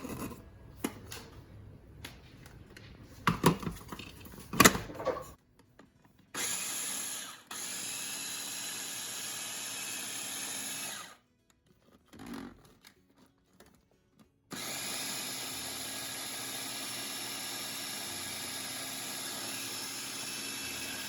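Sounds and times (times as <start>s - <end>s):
electric blender running: 6.4s - 11.2s, 14.5s - 21.0s.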